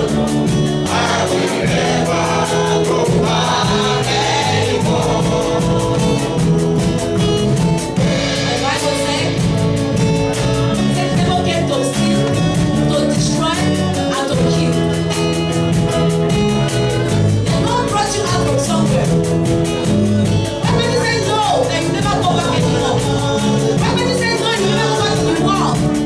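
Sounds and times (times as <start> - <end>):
voices singing: 0.0 - 12.5, 20.6 - 26.0
band with steady drum beat: 0.0 - 26.0.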